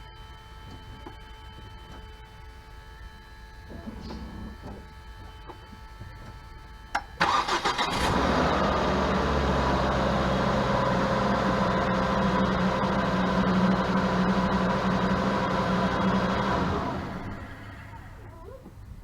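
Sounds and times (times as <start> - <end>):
car engine starting and idling: 6.9 - 19.0.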